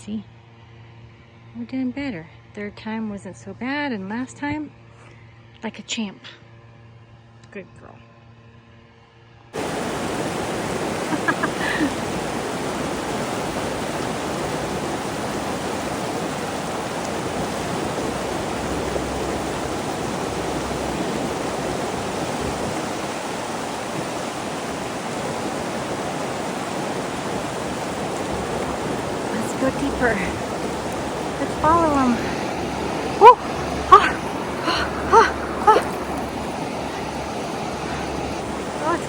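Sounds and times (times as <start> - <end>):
river water rushing: 9.6 - 39.0.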